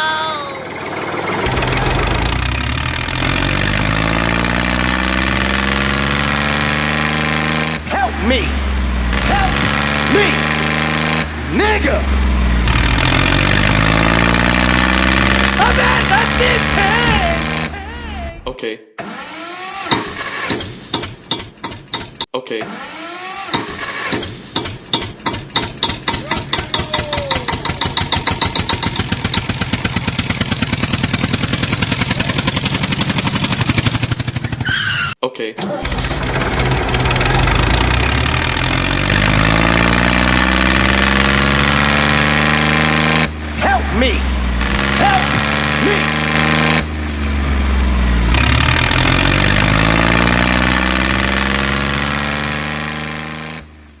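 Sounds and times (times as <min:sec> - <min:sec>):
tractor engine puttering: 0:00.0 - 0:18.6, 0:20.4 - 0:54.0.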